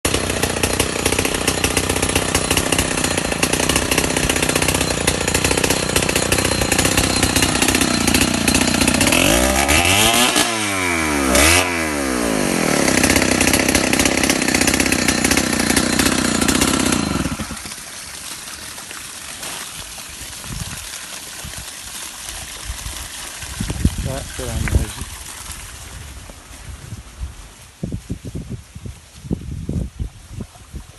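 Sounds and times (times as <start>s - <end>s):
small engine running: 0.1s - 17.8s.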